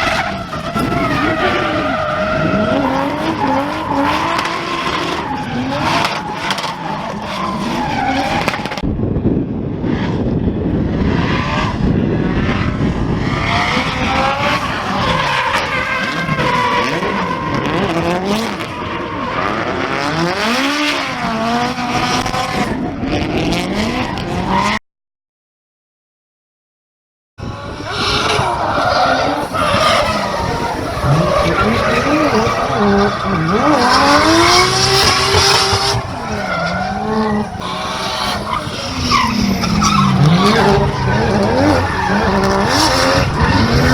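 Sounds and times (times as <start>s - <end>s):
tires squealing: 0.0s - 8.8s, 10.9s - 24.8s, 27.4s - 43.9s
car engines revving: 0.0s - 8.9s, 9.6s - 24.8s, 27.4s - 43.9s.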